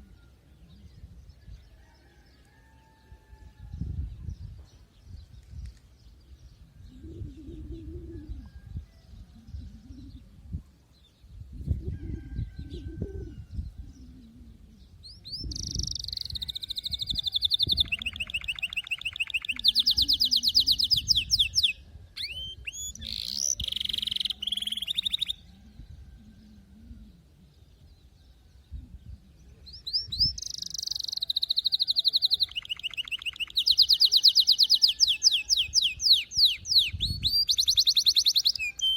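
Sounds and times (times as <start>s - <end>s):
canary singing trills: 15.1s - 25.5s, 29.7s - 38.9s.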